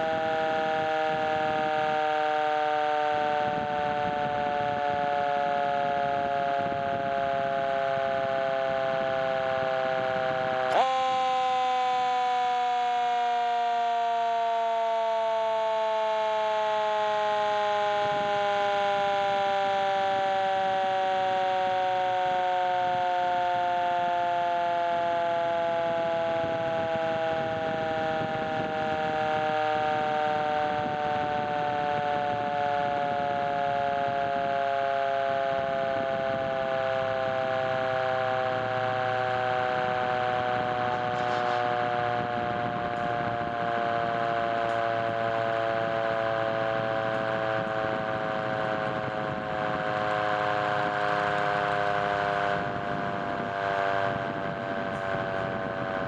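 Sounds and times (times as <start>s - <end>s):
fire truck siren wailing: 0.0s - 56.0s.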